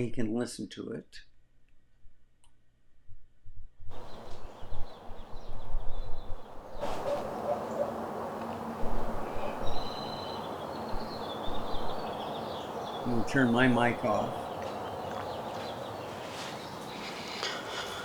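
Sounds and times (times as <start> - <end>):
birds chirping faintly: 3.9 - 18.0.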